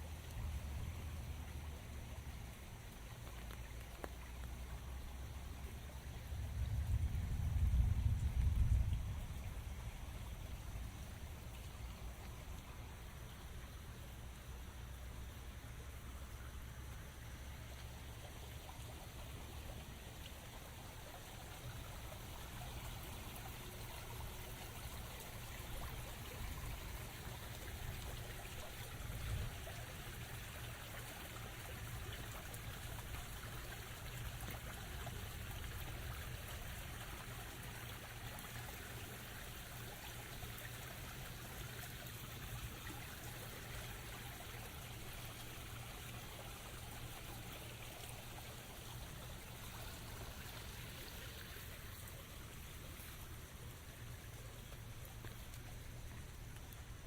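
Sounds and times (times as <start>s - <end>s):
steady rain: 0.0s - 57.0s
water running and trickling: 0.0s - 57.0s
low rumble: 6.2s - 10.9s.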